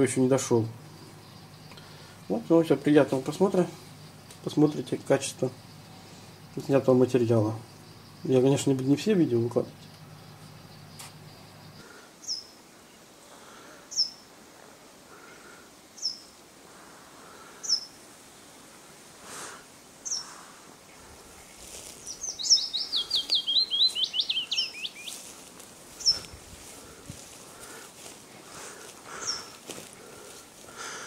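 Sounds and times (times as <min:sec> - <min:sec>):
bird chirping: 0:00.0 - 0:12.6, 0:13.9 - 0:14.2, 0:16.0 - 0:16.3, 0:17.6 - 0:18.0, 0:20.0 - 0:26.4, 0:28.5 - 0:30.3
bird song: 0:00.0 - 0:13.0, 0:13.9 - 0:14.2, 0:16.0 - 0:16.3, 0:17.6 - 0:18.5, 0:20.0 - 0:26.7, 0:28.8 - 0:30.3
faint background hiss: 0:00.0 - 0:31.0.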